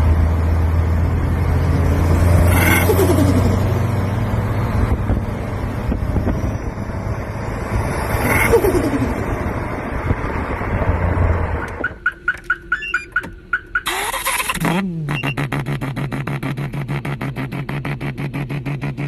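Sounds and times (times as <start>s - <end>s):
turbo flutter chirps: 2.5s - 3.6s, 8.2s - 9.2s, 11.8s - 16.8s.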